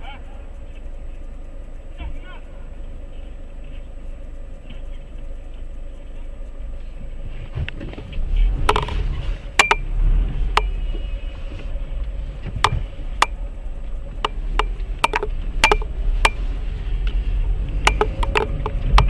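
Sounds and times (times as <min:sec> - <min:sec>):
car driving road noise: 0:00.0 - 0:19.0
sharp clicks and knocks: 0:07.6 - 0:09.9, 0:12.4 - 0:13.4, 0:14.1 - 0:16.4, 0:17.0 - 0:19.0.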